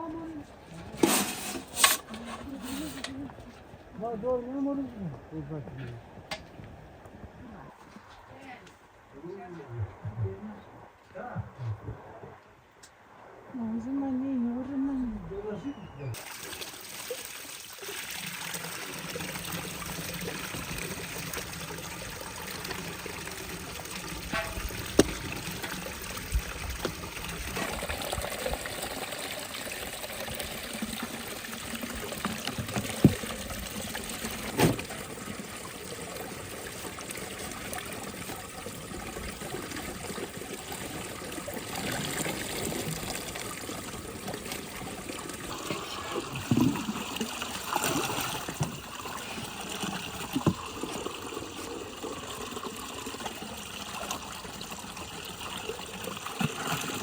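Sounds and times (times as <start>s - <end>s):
water trickling: 16.1s - 57.0s.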